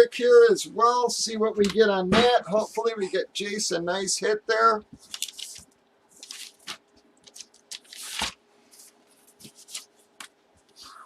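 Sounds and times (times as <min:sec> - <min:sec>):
packaging crinkling: 0:05.0 - 0:09.9
packaging rustle: 0:05.0 - 0:09.9.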